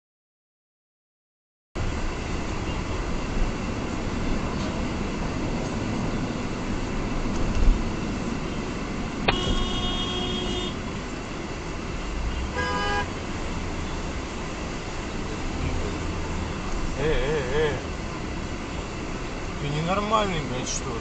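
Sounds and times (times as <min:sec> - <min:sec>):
traffic noise: 0:01.8 - 0:21.0
car horn honking: 0:09.2 - 0:10.8, 0:12.3 - 0:13.2.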